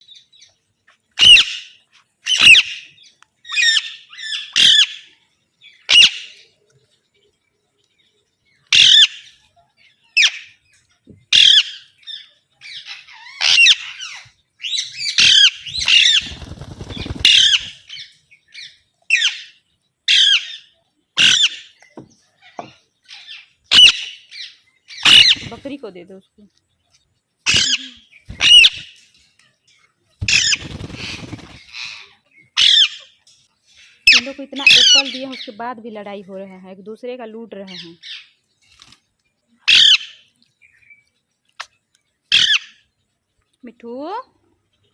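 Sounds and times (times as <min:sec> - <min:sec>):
parakeets squawking: 0:01.2 - 0:01.6, 0:02.3 - 0:02.8, 0:03.5 - 0:05.1, 0:05.9 - 0:06.4, 0:08.7 - 0:09.3, 0:11.3 - 0:18.0, 0:21.2 - 0:21.7, 0:23.1 - 0:25.7, 0:27.5 - 0:28.9, 0:30.2 - 0:33.1, 0:34.0 - 0:35.6, 0:39.7 - 0:40.2, 0:42.3 - 0:42.8.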